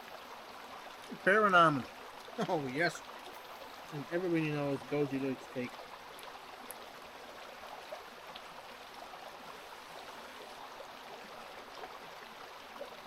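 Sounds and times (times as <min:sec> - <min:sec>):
river flowing: 0:00.0 - 0:13.0.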